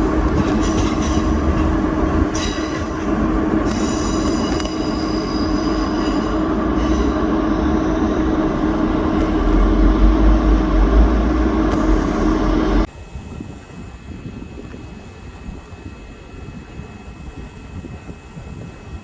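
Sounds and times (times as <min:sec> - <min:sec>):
constant hum: 0:00.0 - 0:12.9
high wheel squeal: 0:00.0 - 0:12.9
train wheels rumbling on rail: 0:00.0 - 0:12.9.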